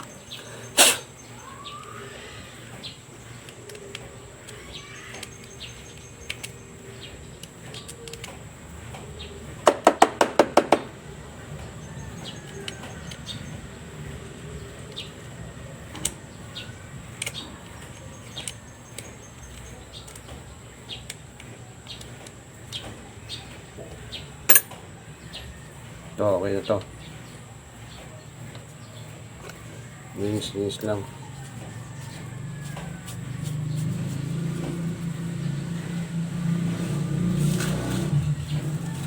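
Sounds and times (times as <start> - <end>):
faint bird chirps: 0.0 - 6.9.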